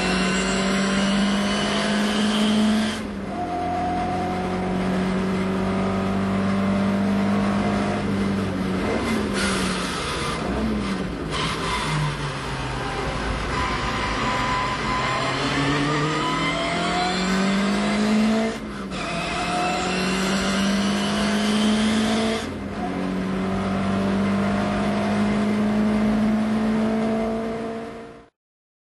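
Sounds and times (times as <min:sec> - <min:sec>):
car engine accelerating hard: 0:00.0 - 0:28.3.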